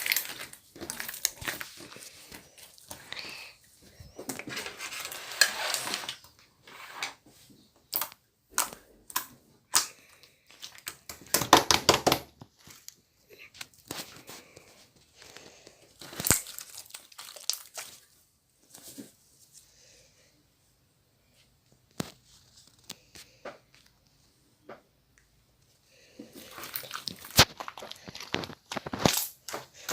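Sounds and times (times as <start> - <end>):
slime squished and stretched: 0.0 - 3.2, 16.0 - 18.2, 26.3 - 29.9
sticky crackling and popping clicks: 26.6 - 29.9.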